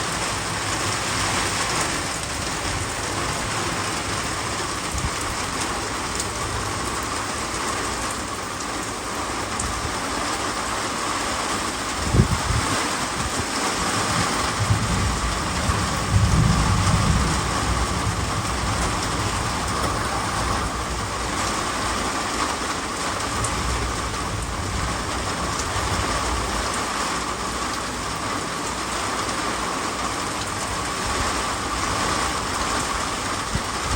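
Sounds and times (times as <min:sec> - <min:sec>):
heavy rain in wind: 0:00.0 - 0:33.9
low rumbles: 0:12.0 - 0:26.6.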